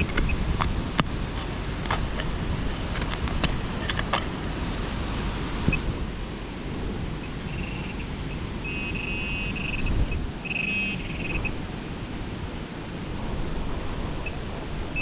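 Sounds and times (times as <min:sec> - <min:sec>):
wind on microphone: 0:00.0 - 0:15.0
metal detector beeps: 0:07.2 - 0:11.6.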